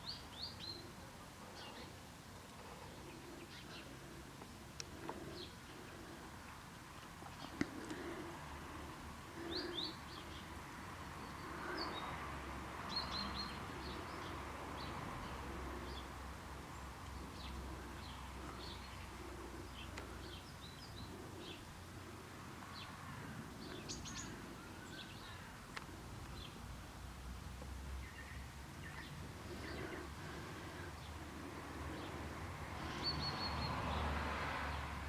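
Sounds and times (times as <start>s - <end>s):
birds chirping: 0.0s - 27.0s, 27.9s - 34.2s.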